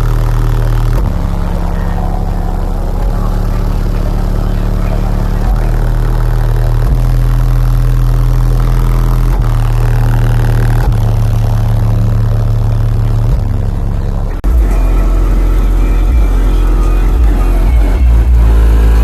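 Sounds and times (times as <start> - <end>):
subwoofer deep bass notes: 0.0 - 19.0.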